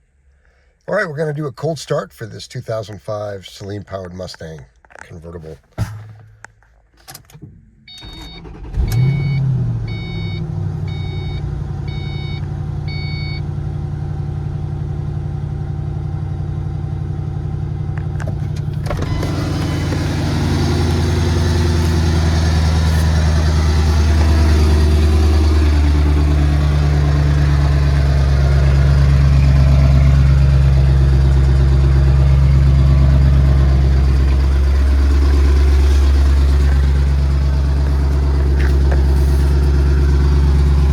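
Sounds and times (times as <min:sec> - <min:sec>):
car engine idling: 0:08.4 - 0:40.9
starter cranking: 0:18.2 - 0:25.5.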